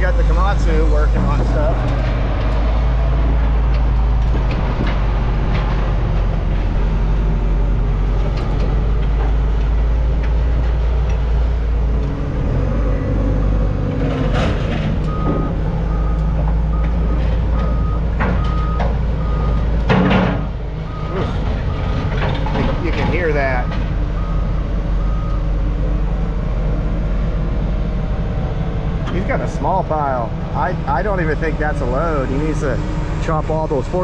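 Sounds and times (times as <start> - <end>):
diesel equipment rumbling: 0.0 - 34.0
back-up alarm beeping: 15.1 - 19.7.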